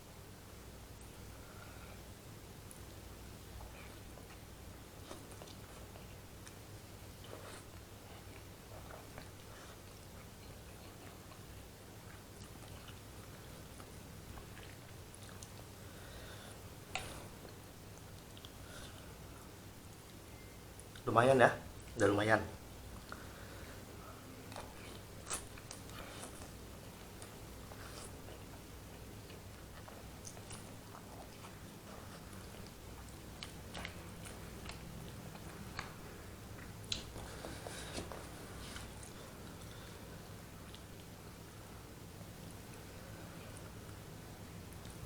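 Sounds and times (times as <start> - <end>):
low steady hum: 0.0 - 45.0
man chewing noodles: 1.0 - 21.1, 22.7 - 45.0
mouth clicks and smacks: 36.8 - 38.2.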